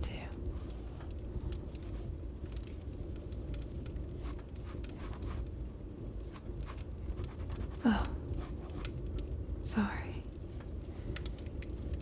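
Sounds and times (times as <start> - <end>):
fireplace ambience: 0.0 - 12.0
rain rumble: 0.0 - 12.0
pencil drawing on paper: 1.4 - 2.1, 4.2 - 5.4.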